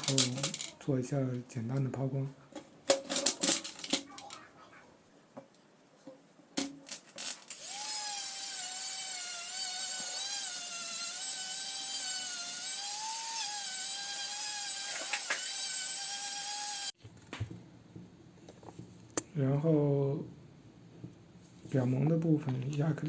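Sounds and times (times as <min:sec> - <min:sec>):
rotary tool whining: 0:07.2 - 0:17.0.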